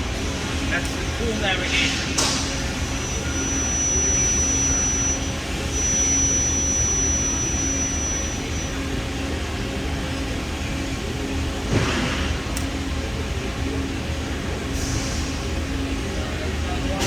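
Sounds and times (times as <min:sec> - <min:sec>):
press brake machine hum: 0:00.0 - 0:16.0
thin high whine: 0:00.6 - 0:10.6.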